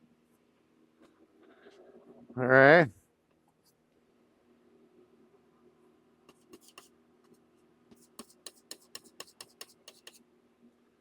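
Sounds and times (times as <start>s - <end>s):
faint steady hum: 0.0s - 11.0s
painting tool tapping canvas: 7.9s - 10.2s.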